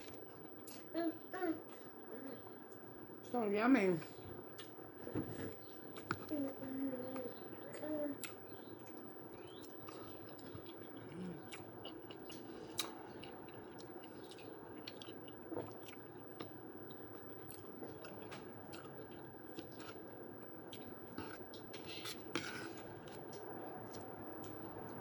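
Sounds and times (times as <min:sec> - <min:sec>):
faint steady hum: 0:00.0 - 0:25.0
close-up chewing: 0:05.5 - 0:25.0.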